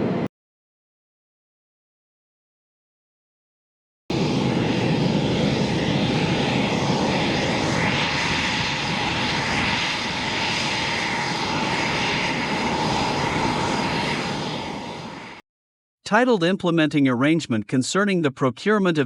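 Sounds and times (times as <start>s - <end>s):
jet engine rushing and whining: 0.0s - 0.3s, 4.1s - 15.4s.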